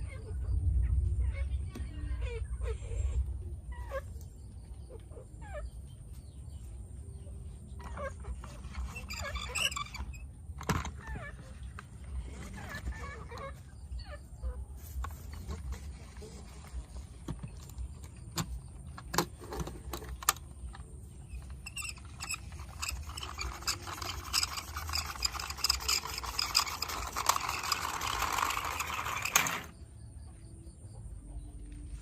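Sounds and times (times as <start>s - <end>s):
toys rattling and scraping: 7.7s - 29.8s
toy vehicles clicking and knocking: 8.1s - 13.7s, 15.0s - 29.8s.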